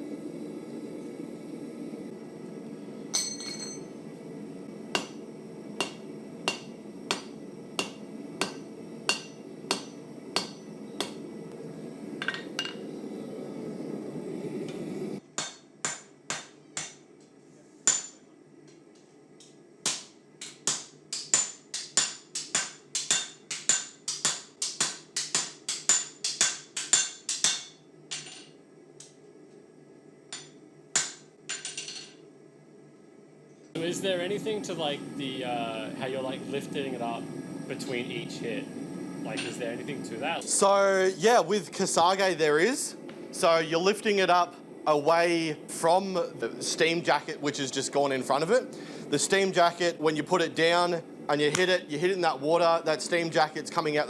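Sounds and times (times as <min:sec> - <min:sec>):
hammer striking steel on anvil: 0:03.2 - 0:03.9, 0:05.0 - 0:11.3, 0:15.4 - 0:17.1, 0:17.9 - 0:18.3, 0:19.8 - 0:28.5, 0:30.3 - 0:32.1
steady low rush: 0:03.9 - 0:15.2, 0:33.8 - 0:54.0.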